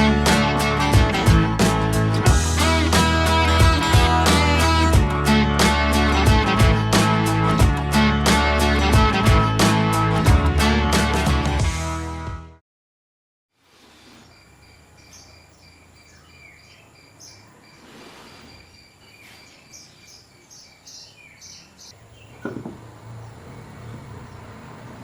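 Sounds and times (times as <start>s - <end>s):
high bird chirps: 14.2s - 22.5s
sharp knocks: 22.4s - 22.9s.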